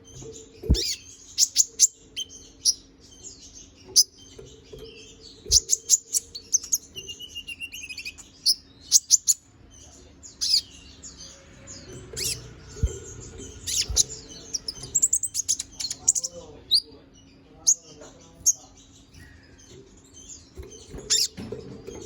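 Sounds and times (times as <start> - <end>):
songbird chirping: 0.0 - 22.0
dull thumps: 0.6 - 1.0.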